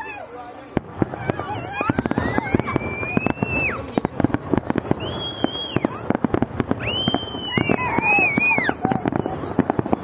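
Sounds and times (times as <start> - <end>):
fireworks bangs and crackles: 0.0 - 10.0
firework shrill whistles: 1.2 - 3.9, 4.9 - 6.1, 6.7 - 9.3.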